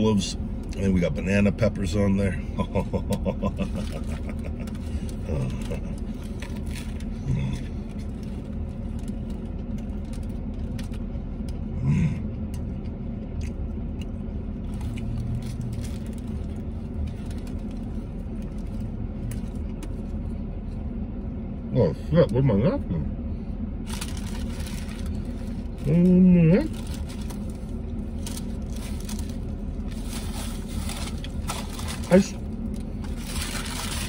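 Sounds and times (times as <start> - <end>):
car cabin low rumble: 0.0 - 34.0
man chewing: 3.0 - 20.9.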